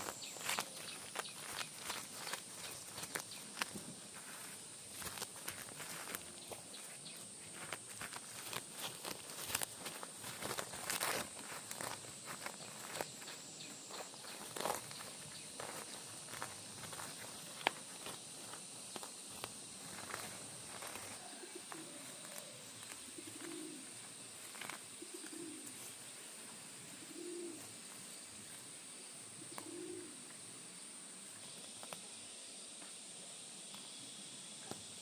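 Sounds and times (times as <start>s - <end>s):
high-pitched hiss: 0.0s - 35.0s
dove cooing: 19.9s - 25.9s, 26.9s - 27.8s, 29.4s - 30.3s.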